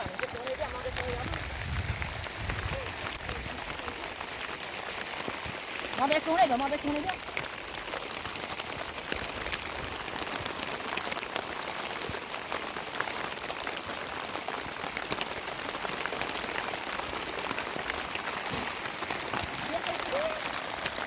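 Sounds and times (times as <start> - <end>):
heavy rain falling: 0.0 - 21.0
raindrops ticking on hard surface: 0.0 - 21.0.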